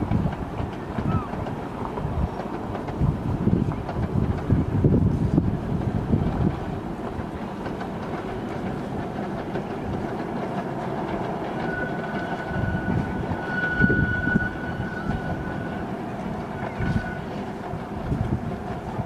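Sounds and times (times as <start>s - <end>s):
train clattering on track: 0.0s - 19.0s
high-pitched squeal: 11.3s - 17.4s.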